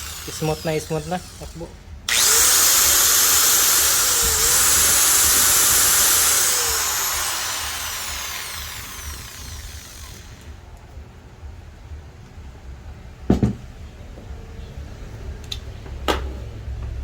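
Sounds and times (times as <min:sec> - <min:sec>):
angle grinder whining: 0:00.0 - 0:10.6.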